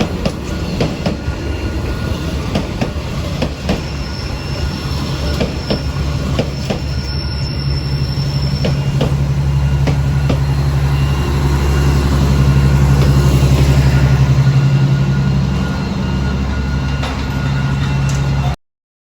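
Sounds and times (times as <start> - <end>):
train wheels clicking over rail joints: 0.0 - 10.9.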